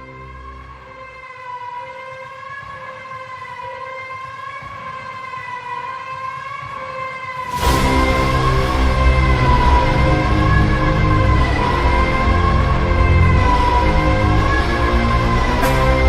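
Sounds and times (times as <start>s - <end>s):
dramatic soundtrack music: 0.0s - 4.1s, 7.4s - 16.0s
siren-like wail: 0.0s - 16.0s
sudden loud hit: 7.5s - 16.0s
low rumble: 7.6s - 16.0s.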